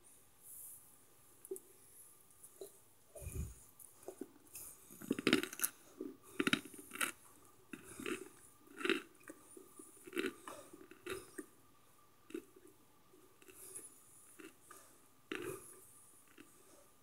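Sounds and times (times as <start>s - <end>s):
dry crackly chewing crunches: 3.8s - 11.5s, 12.3s - 12.8s, 13.4s - 16.7s.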